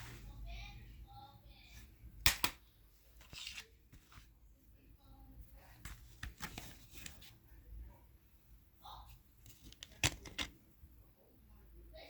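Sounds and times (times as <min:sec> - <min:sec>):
plastic cd cases handled: 0:03.2 - 0:04.3, 0:05.8 - 0:07.4, 0:09.4 - 0:10.6.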